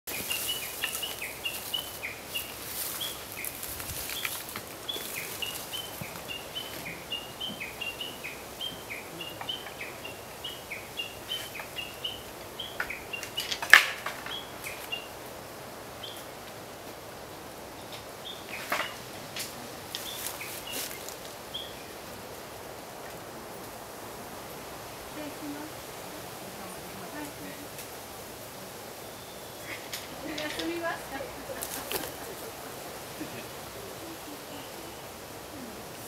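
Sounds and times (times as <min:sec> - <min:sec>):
small bird chirping: 0:00.1 - 0:15.2, 0:19.9 - 0:21.9.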